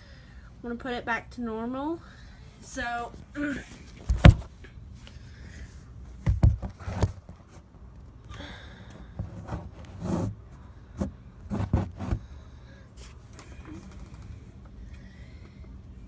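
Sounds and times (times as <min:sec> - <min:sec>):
low steady hum: 0:00.0 - 0:16.0
vacuum parts knocking and clicking: 0:04.0 - 0:04.5, 0:06.3 - 0:07.3.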